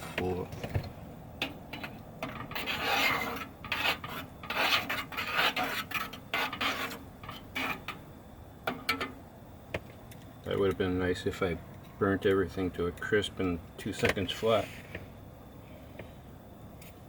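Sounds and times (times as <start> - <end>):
spoon scraping cooking pot: 1.7 - 8.0.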